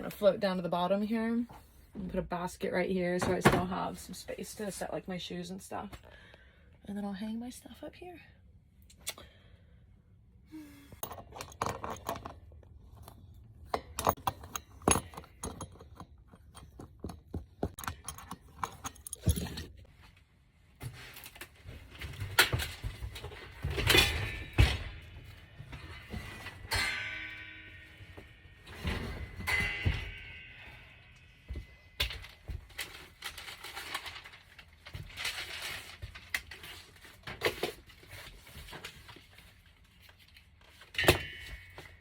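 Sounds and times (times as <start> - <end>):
hard objects clattering: 10.9 - 19.9
metal clanking and ringing: 23.7 - 32.1.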